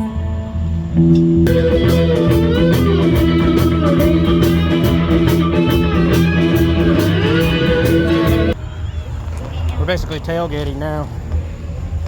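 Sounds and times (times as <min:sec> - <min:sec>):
bass guitar: 0:00.0 - 0:08.6
electric guitar lines: 0:00.0 - 0:08.6
steady drum beat: 0:01.5 - 0:08.6.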